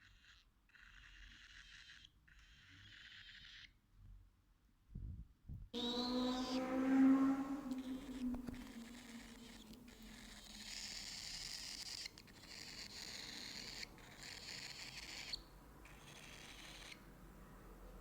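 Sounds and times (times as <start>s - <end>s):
cockatiel raspy hissing calls: 8.0s - 17.0s.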